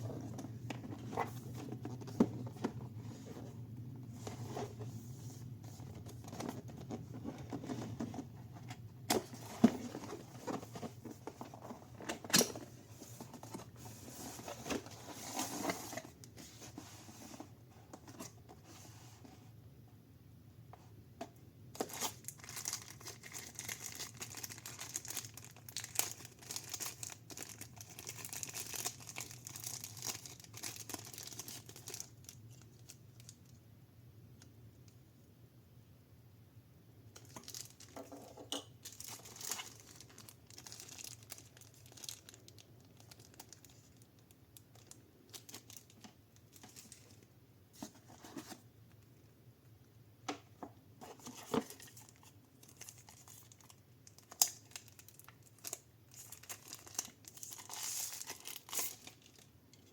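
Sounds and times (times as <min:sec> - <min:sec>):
plastic and paper rustling: 0:00.0 - 0:19.5, 0:21.8 - 0:33.4, 0:37.2 - 0:48.7, 0:51.0 - 0:59.9.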